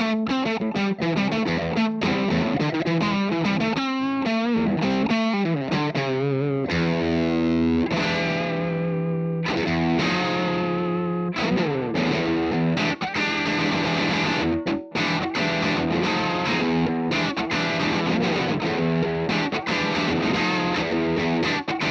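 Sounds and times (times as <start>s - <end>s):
distorted electric guitar: 0.0s - 21.9s.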